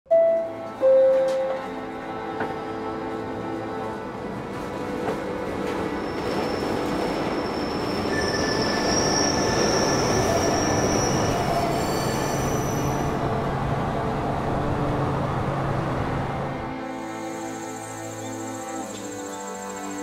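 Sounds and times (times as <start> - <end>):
train running on rails: 0.1 - 20.0
wheel squeal: 6.0 - 13.1.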